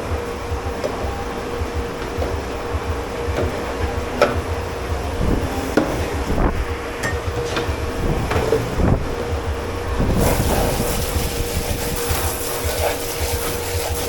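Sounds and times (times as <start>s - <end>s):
low rumble: 0.0s - 13.5s
steady hum: 0.0s - 14.0s
hiss: 10.1s - 14.0s.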